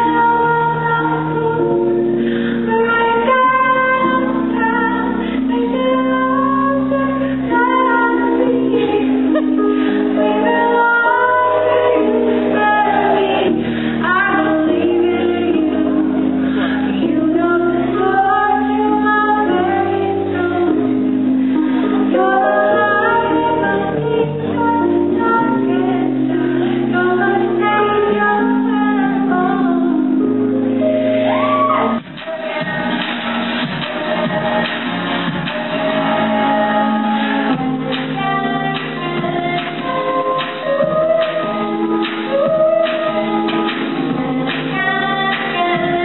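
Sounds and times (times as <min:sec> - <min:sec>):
woman singing: 0:00.0 - 0:46.0.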